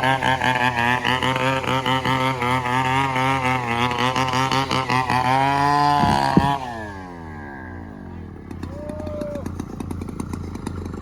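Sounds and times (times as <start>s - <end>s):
bulldozer diesel engine running: 0.0s - 11.0s
sharp knocks: 6.0s - 6.6s.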